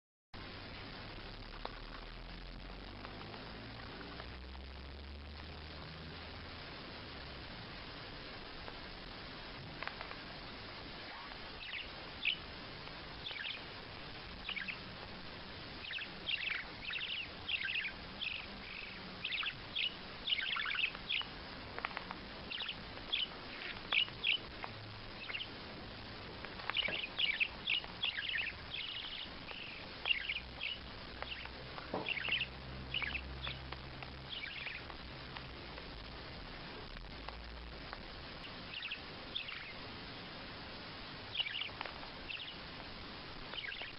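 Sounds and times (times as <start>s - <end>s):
steady hiss: 0.4s - 43.9s
bird squawking: 11.1s - 12.4s, 13.2s - 13.6s, 14.4s - 14.8s, 15.8s - 21.3s, 22.5s - 24.5s, 25.2s - 25.5s, 26.7s - 33.6s, 34.3s - 34.9s, 38.4s - 39.8s, 41.3s - 42.6s, 43.6s - 43.9s.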